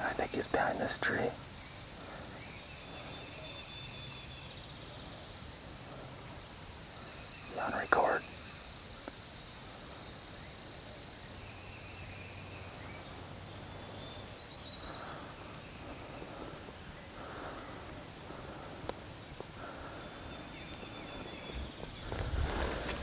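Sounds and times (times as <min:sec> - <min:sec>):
rustling: 0:21.2 - 0:23.0.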